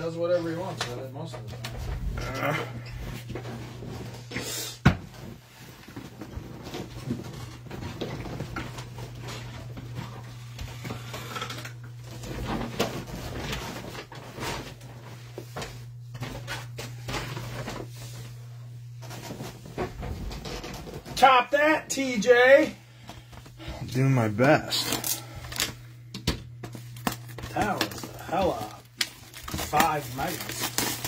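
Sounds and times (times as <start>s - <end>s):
low electrical hum: 0.0s - 31.0s
cards being handled: 26.6s - 31.0s.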